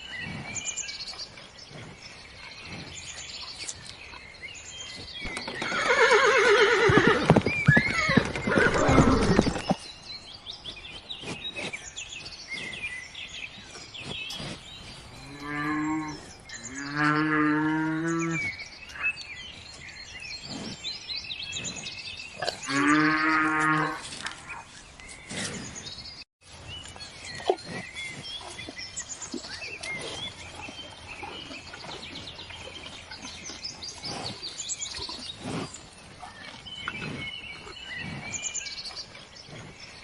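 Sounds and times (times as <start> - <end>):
cow mooing: 14.6 - 18.4.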